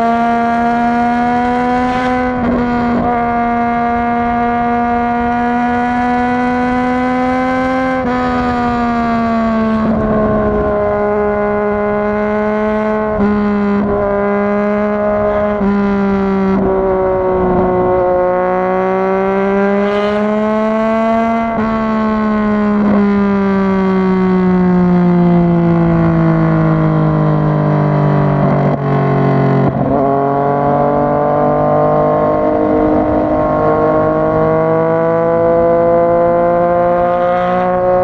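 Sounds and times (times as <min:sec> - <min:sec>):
motorcycle engine running: 0:02.3 - 0:31.2.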